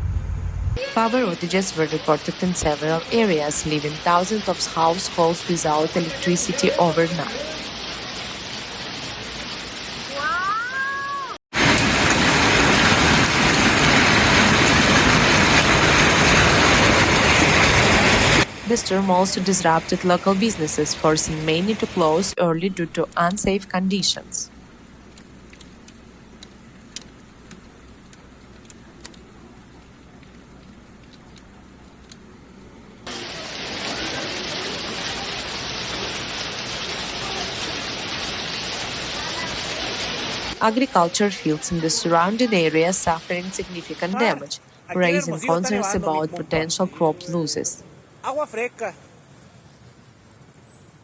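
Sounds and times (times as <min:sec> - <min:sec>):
heavy hail pelting down: 0:11.5 - 0:18.6, 0:33.1 - 0:40.6
faint clicks: 0:25.1 - 0:32.3.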